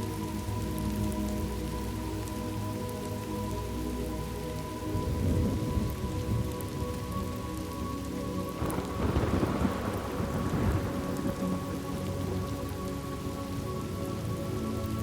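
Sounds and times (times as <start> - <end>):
steady rain: 0.0 - 15.0
rolling thunder: 8.6 - 11.7.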